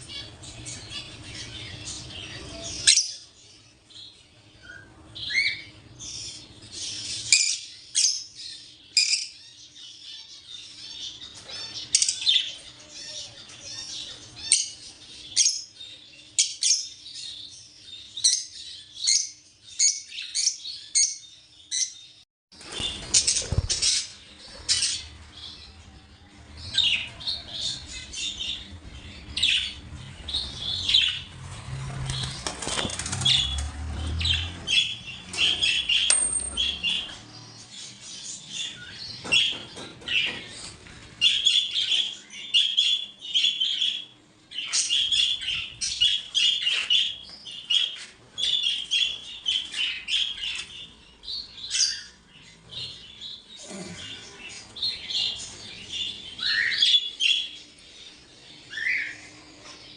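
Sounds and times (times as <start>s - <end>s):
caged birds chirping: 0.0s - 59.9s
wings flapping: 22.6s - 24.7s, 31.4s - 33.8s.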